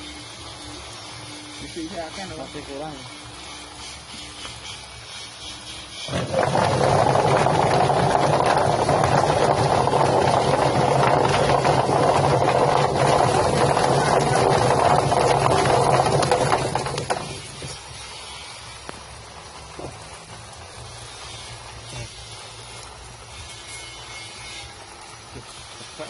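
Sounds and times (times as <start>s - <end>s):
plucking machine motor hum: 0.0s - 17.9s
rattling churning noise: 1.5s - 19.0s.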